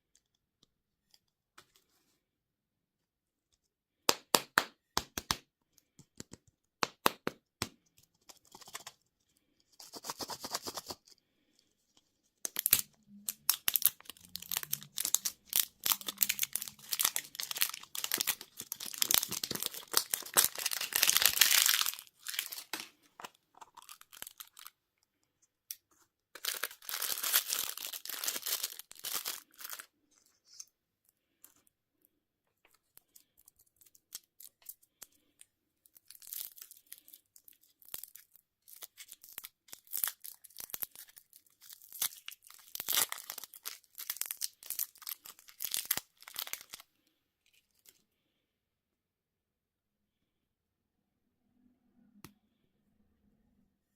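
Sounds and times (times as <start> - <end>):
wrappers tearing and crinkling: 12.5 - 22.9, 23.7 - 24.7, 26.4 - 29.9, 36.0 - 46.8.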